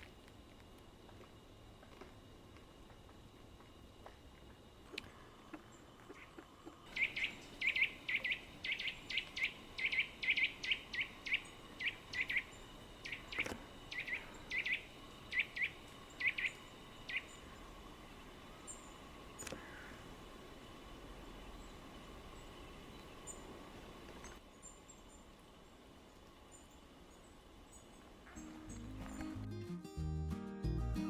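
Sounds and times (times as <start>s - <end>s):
bird chirping: 5.6s - 19.9s, 21.2s - 23.6s, 26.5s - 29.4s.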